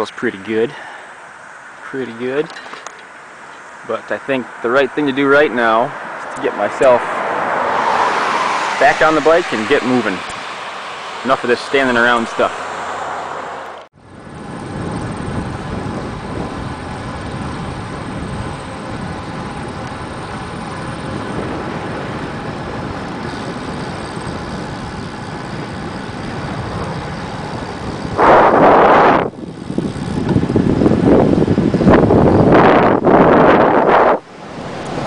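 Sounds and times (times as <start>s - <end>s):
bicycle road noise: 0.0s - 35.0s
wind buffeting microphone: 14.0s - 35.0s.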